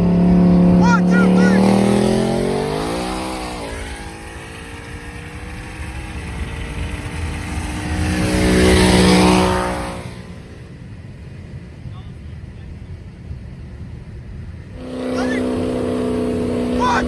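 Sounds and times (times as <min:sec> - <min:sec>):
car engine revving: 0:00.0 - 0:10.9, 0:14.6 - 0:17.0.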